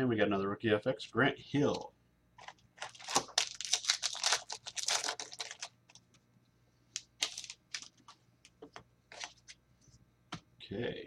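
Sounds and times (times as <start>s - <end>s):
trading cards clicking and rustling: 7.0s - 9.6s.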